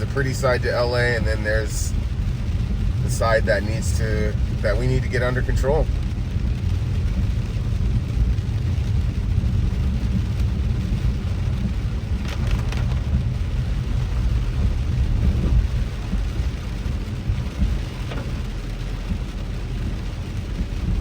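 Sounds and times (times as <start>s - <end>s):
car driving rumble: 0.0s - 21.0s
rain on a car: 0.0s - 21.0s.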